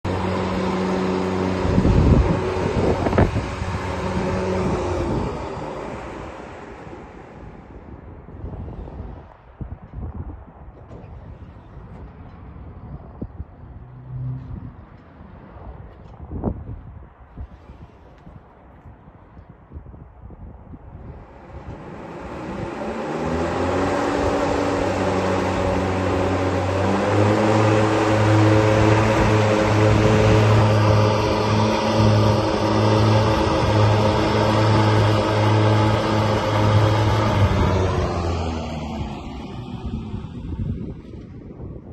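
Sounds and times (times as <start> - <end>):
robotic lawnmower motor hum: 0.0 - 7.3, 21.3 - 40.6
wind noise on microphone: 0.0 - 41.9.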